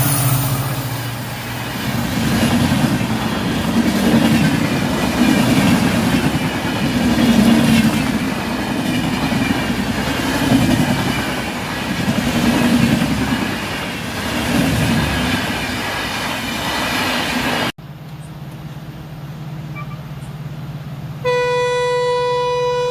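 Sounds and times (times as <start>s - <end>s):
train rumbling past: 0.0s - 17.7s
train wheels clattering: 0.0s - 17.7s
train horn: 21.2s - 22.9s.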